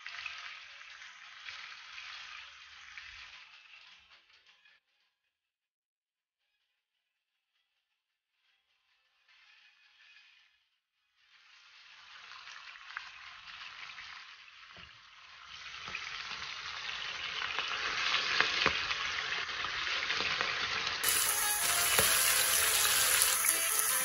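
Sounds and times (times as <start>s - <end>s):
fish sizzling in hot oil: 0.0s - 4.8s, 11.1s - 24.0s.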